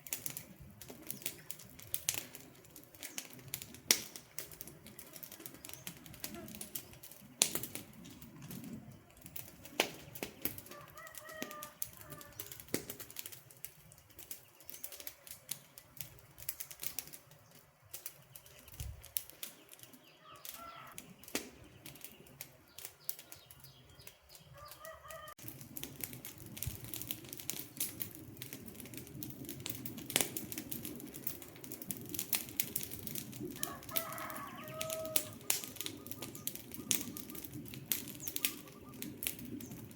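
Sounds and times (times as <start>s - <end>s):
campfire crackling: 0.0s - 39.9s
bird calling: 19.6s - 25.3s, 34.0s - 39.8s.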